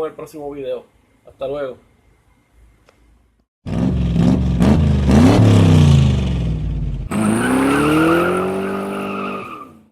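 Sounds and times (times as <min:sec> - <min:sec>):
car engine revving: 0:03.7 - 0:09.3.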